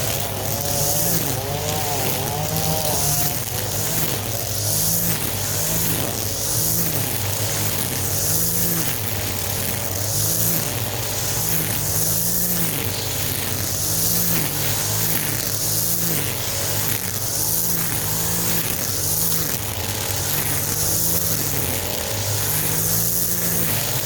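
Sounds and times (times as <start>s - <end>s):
small petrol engine running: 0.0s - 24.0s.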